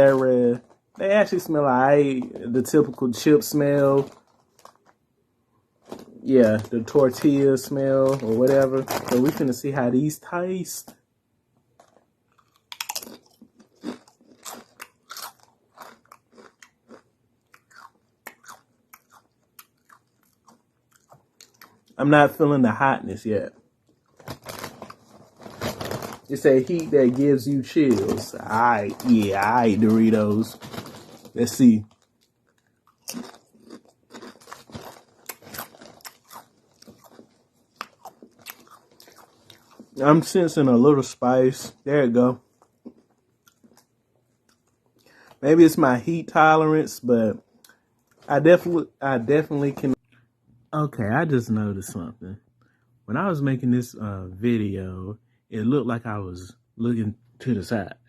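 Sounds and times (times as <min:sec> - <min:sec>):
person crunching chips: 0:00.0 - 0:05.0, 0:05.7 - 0:09.6, 0:11.8 - 0:22.0, 0:23.9 - 0:41.8, 0:42.4 - 0:45.9.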